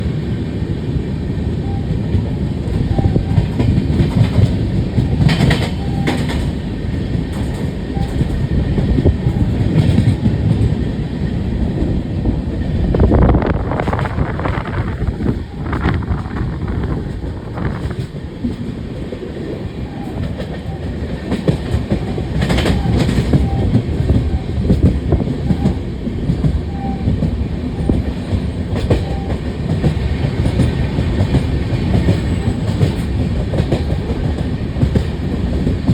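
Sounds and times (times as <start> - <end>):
train wheels rumbling on rails: 0.0 - 35.9
wheels clicking over rail joints: 2.6 - 10.9, 12.6 - 35.9.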